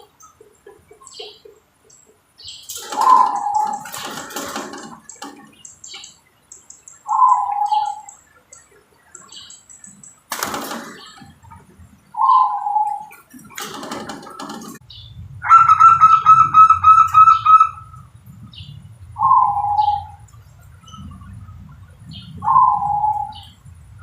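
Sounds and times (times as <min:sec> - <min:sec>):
noisy rustling: 0:00.0 - 0:07.1, 0:08.2 - 0:24.0
dove cooing: 0:02.8 - 0:05.6, 0:07.1 - 0:08.1, 0:10.5 - 0:14.7, 0:19.2 - 0:20.3, 0:22.2 - 0:23.6.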